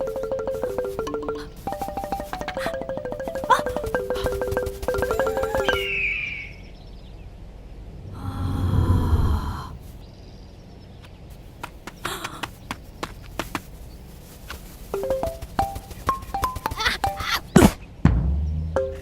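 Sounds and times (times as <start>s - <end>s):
steady tones: 0.0s - 6.1s
music cues: 0.0s - 6.2s, 14.9s - 17.6s, 18.8s - 19.0s
cartoon falling whistle: 5.7s - 6.7s.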